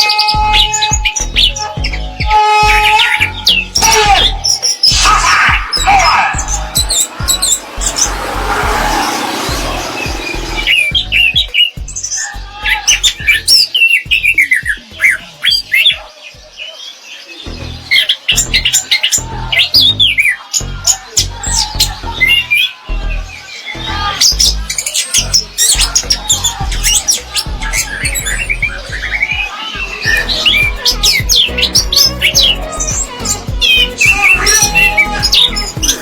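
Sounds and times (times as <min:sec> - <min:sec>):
electronic music with bass beat: 0:00.0 - 0:16.6, 0:17.5 - 0:36.0
thrush singing whistled notes: 0:00.0 - 0:36.0.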